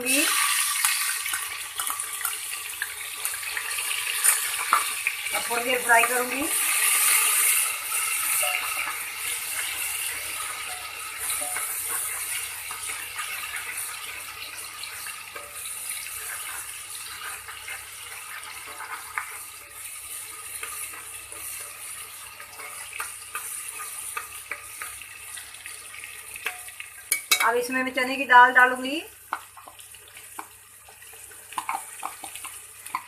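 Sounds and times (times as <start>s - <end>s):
vegetables sizzling in oil: 0.0s - 33.0s.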